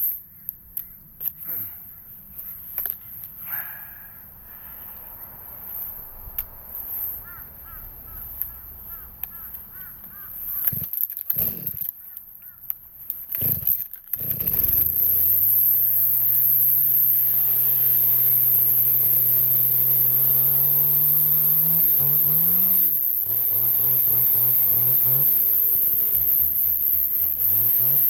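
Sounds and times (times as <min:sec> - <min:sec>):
chainsaw engine running: 0:10.4 - 0:11.9, 0:13.3 - 0:28.0.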